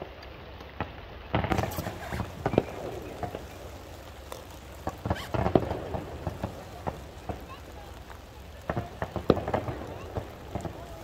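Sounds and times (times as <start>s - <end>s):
fireworks cracking and popping: 0.0s - 11.0s
heavy firework bangs: 1.3s - 3.7s, 4.7s - 11.0s.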